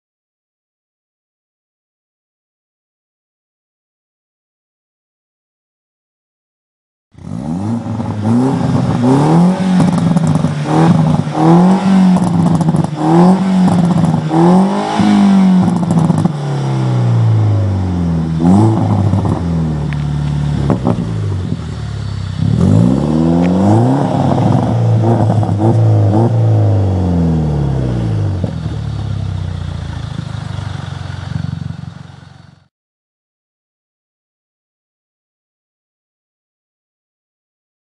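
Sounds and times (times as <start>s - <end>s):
car engine revving: 7.2s - 32.6s.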